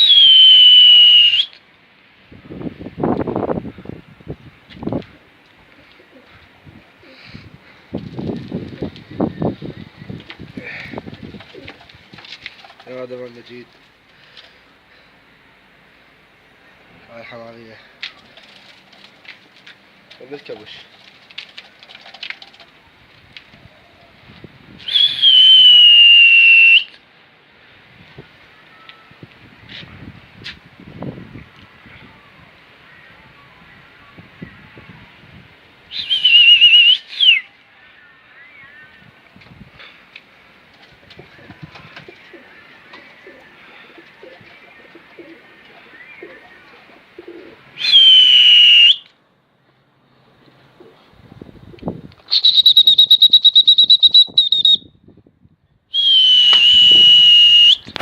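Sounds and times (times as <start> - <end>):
loud shrill whistle: 0.0 - 1.6, 24.8 - 26.9, 35.9 - 37.5, 47.8 - 49.1, 52.3 - 54.9, 55.9 - 57.9
pigeons cooing: 10.6 - 12.8, 41.0 - 47.8, 50.7 - 51.1.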